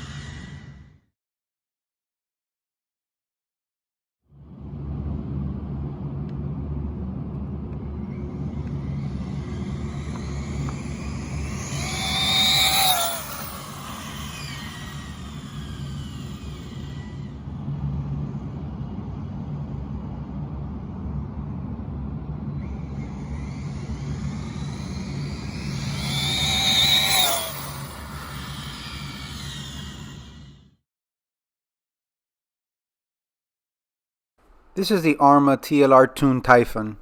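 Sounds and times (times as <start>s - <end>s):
electric toy car motor whine: 0.0s - 1.0s, 8.1s - 18.5s, 22.6s - 30.8s
steady low rumble: 4.4s - 29.4s.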